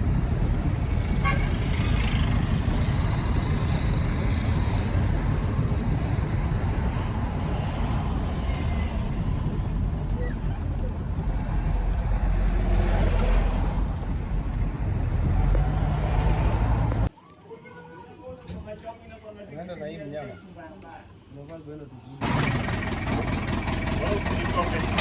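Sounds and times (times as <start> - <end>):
truck engine and road rumble: 0.0 - 17.1, 22.2 - 25.0.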